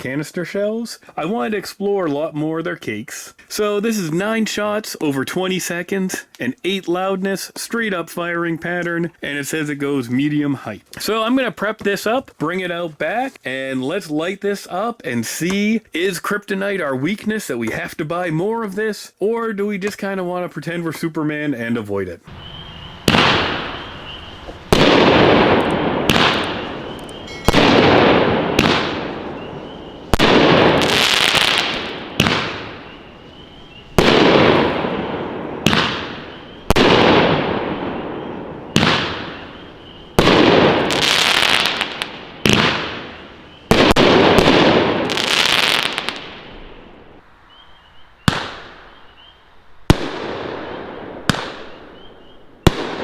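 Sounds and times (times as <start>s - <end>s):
firework crackle: 22.3s - 46.6s
firework bangs: 22.3s - 46.8s, 48.2s - 49.0s, 49.8s - 53.0s.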